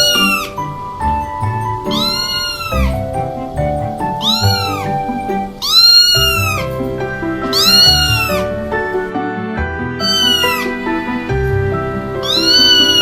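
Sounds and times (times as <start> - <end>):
background music: 0.0 - 13.0
cat meowing: 1.9 - 3.0, 5.6 - 6.7.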